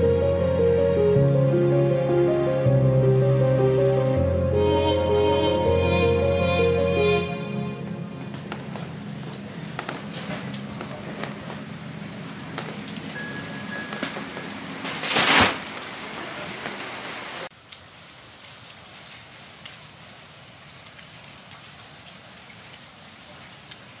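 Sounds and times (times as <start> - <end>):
steady rain falling: 7.9 - 24.0
raindrops ticking: 8.3 - 15.0, 17.4 - 24.0.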